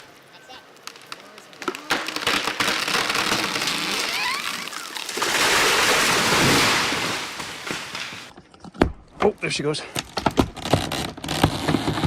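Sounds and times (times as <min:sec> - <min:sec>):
wood creaking: 0:00.7 - 0:05.1, 0:10.0 - 0:12.0
tree crown crashing through branches: 0:01.6 - 0:08.3.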